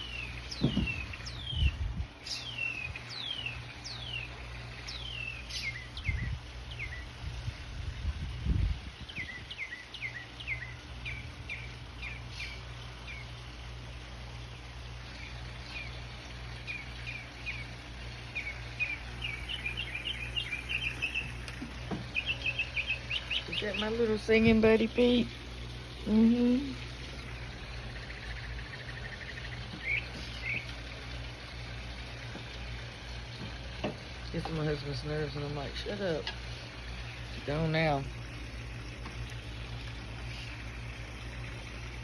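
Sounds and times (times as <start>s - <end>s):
bird singing whistled notes: 0.0s - 4.3s, 4.9s - 7.1s, 9.0s - 13.3s, 18.4s - 21.4s, 28.0s - 30.7s
low thumps: 0.5s - 1.9s.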